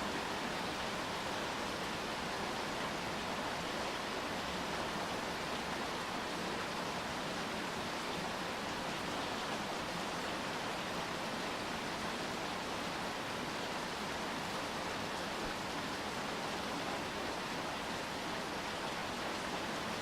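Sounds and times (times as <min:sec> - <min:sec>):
steady rainfall: 0:00.0 - 0:20.0.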